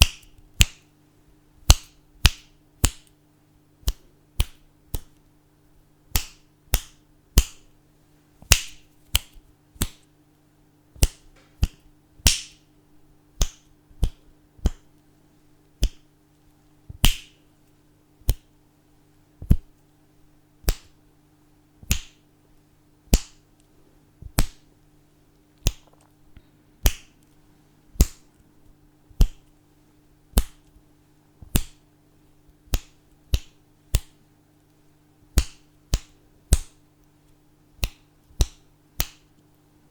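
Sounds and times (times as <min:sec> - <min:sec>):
fingers snapping: 0:00.0 - 0:00.9, 0:01.6 - 0:03.2, 0:03.8 - 0:05.3, 0:06.1 - 0:07.7, 0:08.4 - 0:10.1, 0:11.0 - 0:12.7, 0:13.4 - 0:15.0, 0:15.8 - 0:16.1, 0:16.9 - 0:17.4, 0:18.2 - 0:18.5, 0:19.4 - 0:19.8, 0:20.6 - 0:21.0, 0:21.8 - 0:22.2, 0:23.1 - 0:24.7, 0:25.6 - 0:29.6, 0:30.3 - 0:30.8, 0:31.4 - 0:31.8, 0:32.5 - 0:39.5
faint steady hum: 0:00.0 - 0:39.9.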